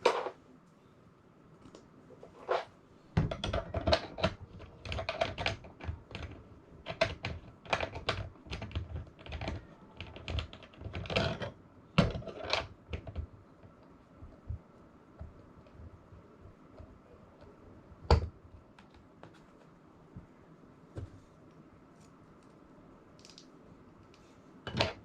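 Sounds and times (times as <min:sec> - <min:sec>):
hard parts clicking and clattering: 0:24.7 - 0:25.0.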